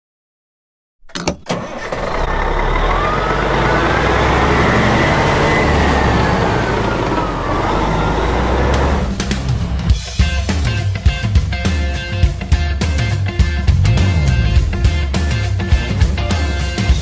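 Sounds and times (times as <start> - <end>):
heavy truck engine rumble: 1.1 - 10.0, 13.3 - 17.0
road noise: 1.5 - 10.0, 13.0 - 17.0
siren rising and falling: 2.3 - 9.2.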